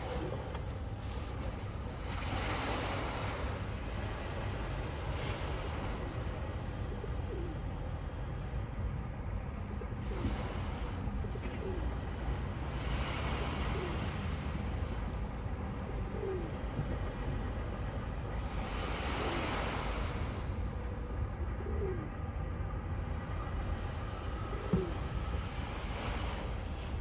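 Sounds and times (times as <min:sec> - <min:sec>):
dove cooing: 0:00.0 - 0:01.6, 0:05.4 - 0:08.0, 0:11.2 - 0:12.1, 0:13.4 - 0:14.3, 0:15.6 - 0:17.0, 0:21.4 - 0:22.5, 0:24.3 - 0:25.3
sea waves washing in: 0:00.0 - 0:08.4, 0:09.0 - 0:27.0.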